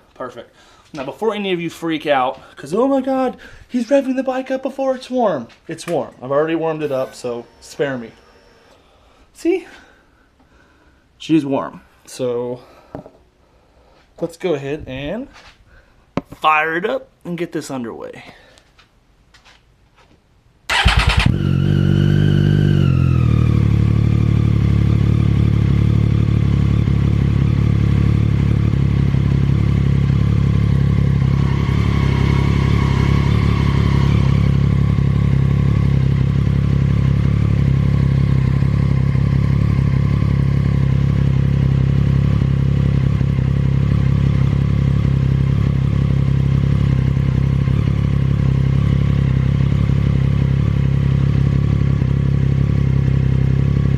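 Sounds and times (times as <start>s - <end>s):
motorcycle starter cranking: 20.7s - 21.5s
motorcycle engine idling: 20.7s - 53.9s.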